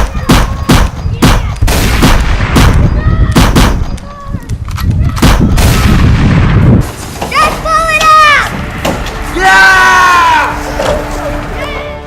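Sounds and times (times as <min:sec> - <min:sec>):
gunshots: 0:00.0 - 0:04.0, 0:05.1 - 0:06.9.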